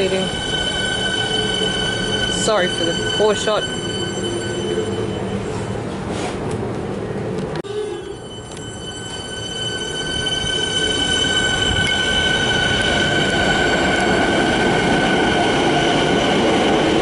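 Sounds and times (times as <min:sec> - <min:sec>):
high-pitched wheel squeal: 0:00.0 - 0:05.8, 0:07.7 - 0:14.2
train running on track: 0:00.0 - 0:17.0.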